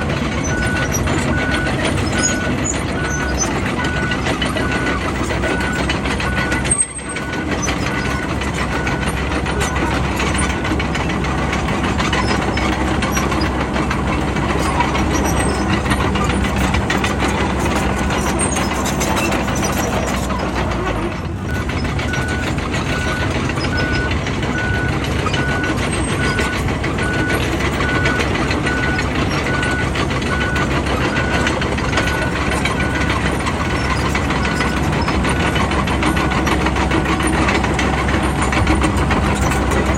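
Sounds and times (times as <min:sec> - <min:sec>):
bulldozer diesel engine running: 0:00.0 - 0:39.9
reversing alarm beeping: 0:00.4 - 0:10.5, 0:21.5 - 0:37.2.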